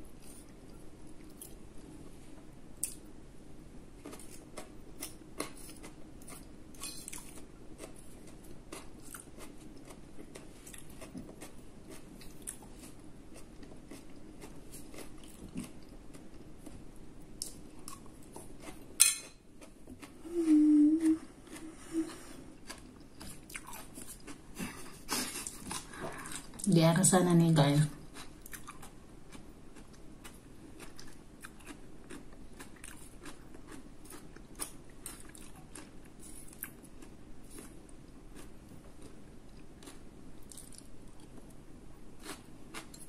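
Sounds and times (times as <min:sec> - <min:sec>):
chewing and mouth sounds: 0:04.0 - 0:16.8, 0:22.6 - 0:26.7, 0:28.1 - 0:41.6.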